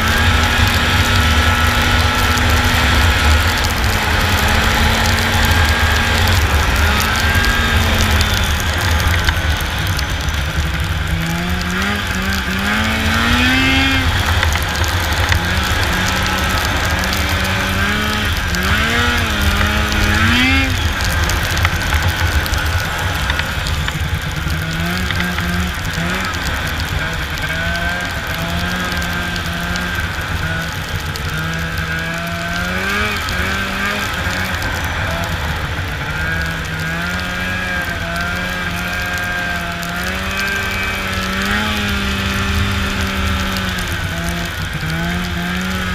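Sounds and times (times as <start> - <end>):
constant low rumble: 0.0 - 45.9
snowmobile engine running: 0.0 - 45.9.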